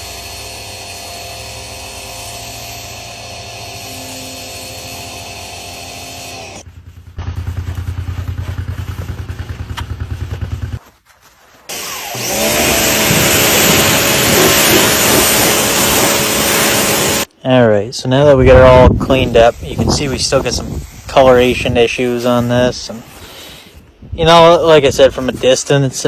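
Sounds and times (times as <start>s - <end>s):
steady motor hum: 0.0s - 10.8s, 11.7s - 17.3s
engine pulsing: 0.0s - 10.9s, 11.7s - 17.3s.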